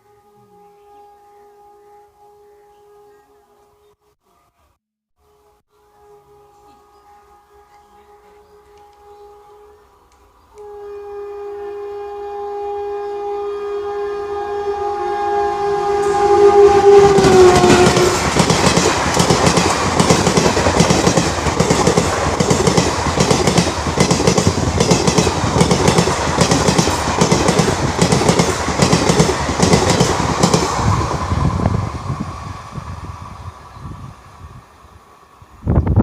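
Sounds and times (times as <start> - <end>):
train horn: 0.0 - 3.8, 5.2 - 30.6
train wheels clattering: 17.1 - 31.2.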